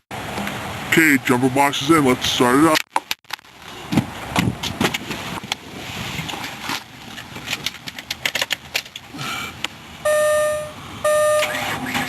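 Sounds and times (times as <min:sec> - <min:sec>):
electronic warning chime: 0:10.0 - 0:12.0.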